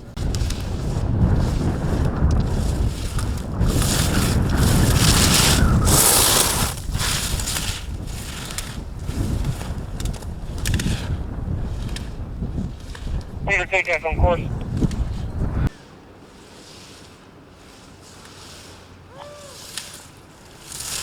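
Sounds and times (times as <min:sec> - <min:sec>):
wind buffeting microphone: 0:00.0 - 0:15.8.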